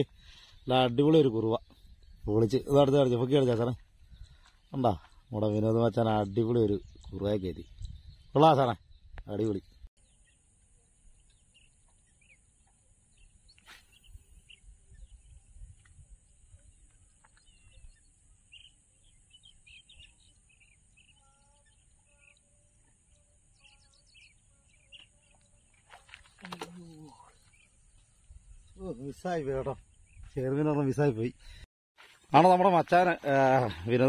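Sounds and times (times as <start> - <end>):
faint bird chirps: 0.0 - 32.4.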